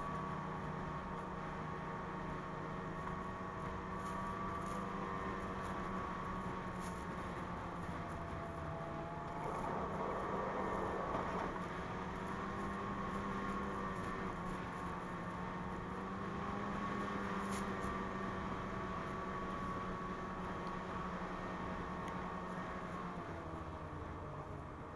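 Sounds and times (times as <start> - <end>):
snowmobile engine running: 3.1 - 20.4.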